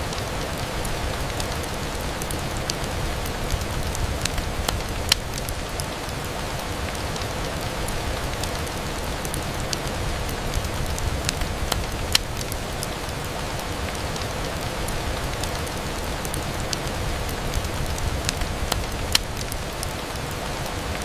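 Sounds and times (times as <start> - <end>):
rain on a window: 0.0 - 21.0.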